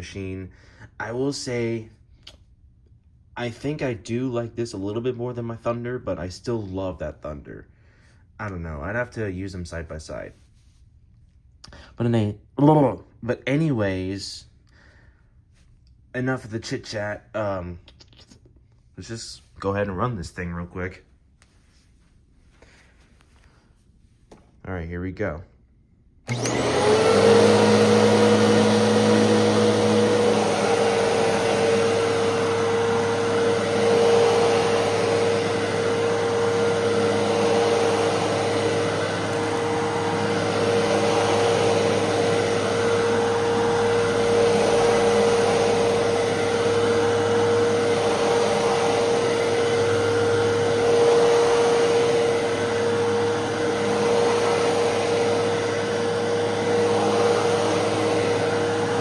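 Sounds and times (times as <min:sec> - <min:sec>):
vacuum cleaner motor whine: 0:26.3 - 0:59.0.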